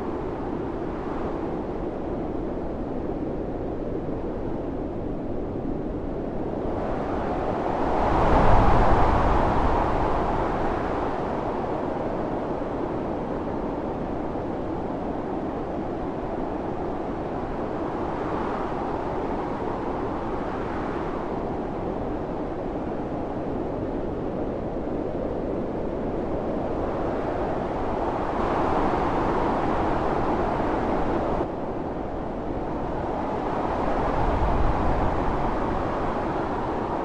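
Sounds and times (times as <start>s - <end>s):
strong wind in snowstorm: 0.0s - 37.0s.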